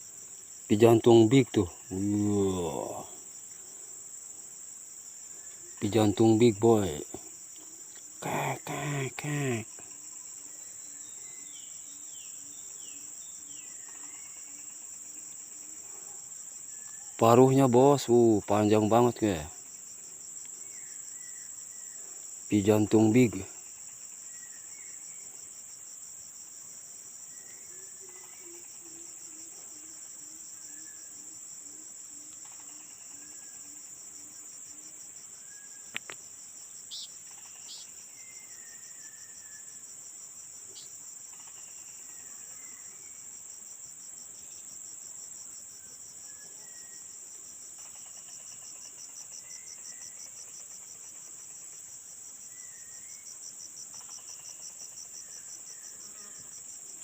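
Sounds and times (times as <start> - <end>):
insects chorus pulsing drone: 0.0 - 57.0
faint bird chirps: 5.3 - 17.5, 24.2 - 25.4, 27.3 - 36.0, 36.9 - 39.8, 40.7 - 43.3, 45.8 - 47.1.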